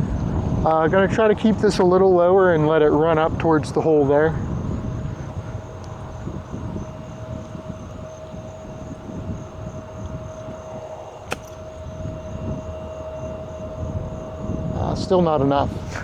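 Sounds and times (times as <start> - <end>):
golf club striking ball: 11.3 - 12.0.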